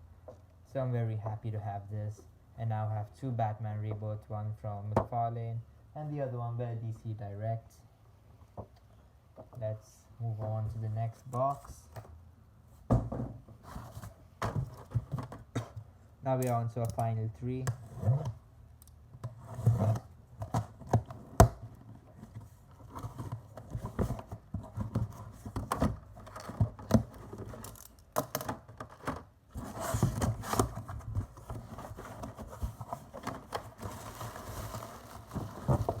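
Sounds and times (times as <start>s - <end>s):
packaging rustling and scraping: 13.6s - 15.8s, 19.3s - 27.9s, 28.7s - 36.0s.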